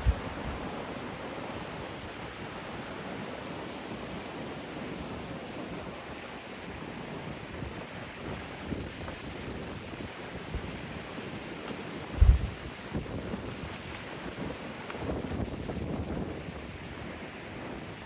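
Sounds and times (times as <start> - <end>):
wind buffeting microphone: 0.0 - 2.6, 7.0 - 18.0
surf rumbling: 9.4 - 18.0.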